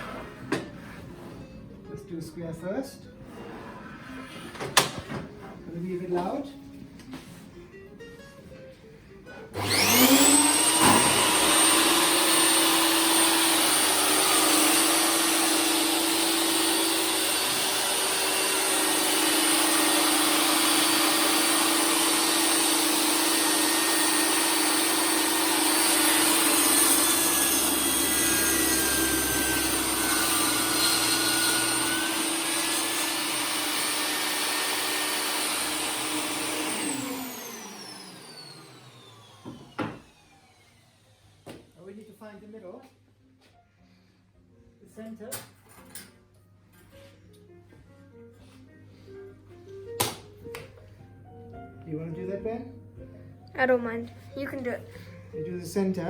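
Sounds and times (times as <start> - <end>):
electric power saw cutting wood: 9.6 - 42.0.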